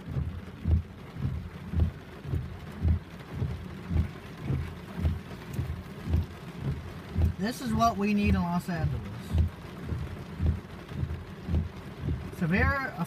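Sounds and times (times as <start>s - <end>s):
regular low thumping: 0.0s - 12.9s
heavy rain falling: 0.0s - 13.0s.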